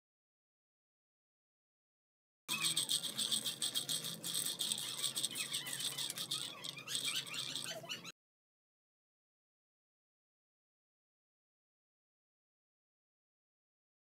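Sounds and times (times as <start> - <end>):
peanuts rattling in a metal pan: 2.5 - 7.8.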